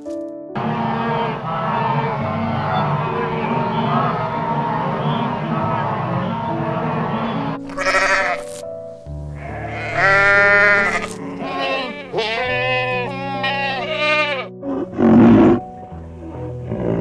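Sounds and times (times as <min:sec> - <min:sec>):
background music with held notes: 0:00.0 - 0:17.0
long wavering bleats: 0:00.6 - 0:08.6, 0:09.3 - 0:14.5.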